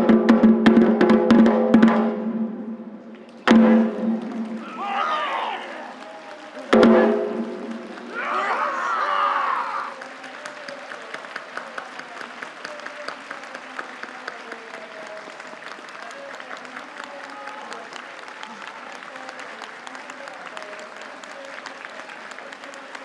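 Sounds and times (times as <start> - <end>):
crowd applauding: 4.2 - 23.0
voices: 4.6 - 6.4, 8.1 - 10.0, 13.9 - 23.0.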